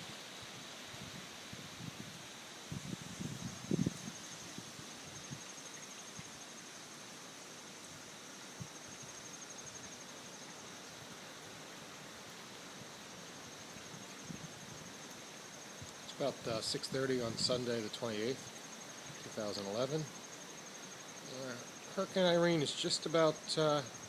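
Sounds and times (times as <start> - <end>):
insects trilling: 0.0 - 24.0
wind in trees: 0.0 - 24.0
wind buffeting microphone: 0.9 - 5.4.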